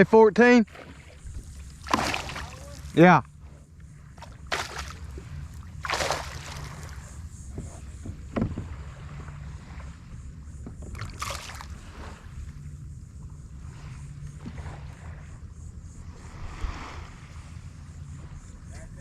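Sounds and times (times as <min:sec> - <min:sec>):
water splashes: 0:00.0 - 0:12.6
wind rumble on microphone: 0:00.7 - 0:19.0.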